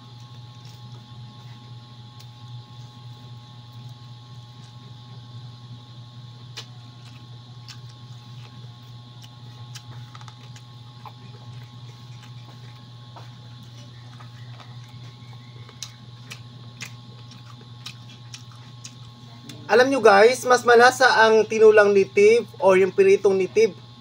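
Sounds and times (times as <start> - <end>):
steady low hum: 0.0 - 24.0
person chewing: 0.1 - 5.0, 6.5 - 19.5.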